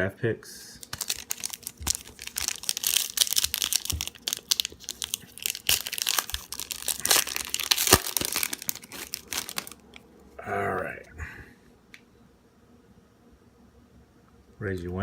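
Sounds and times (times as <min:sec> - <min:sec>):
foil wrapper tearing and crinkling: 0:00.8 - 0:10.0.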